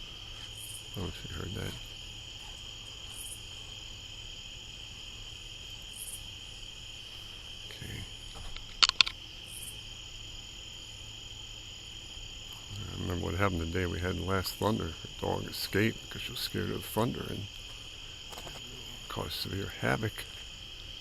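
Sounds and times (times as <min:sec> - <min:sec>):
crickets trilling: 0:00.0 - 0:21.0
high pulsing insect call: 0:00.0 - 0:21.0
sharp clicks: 0:08.4 - 0:09.2.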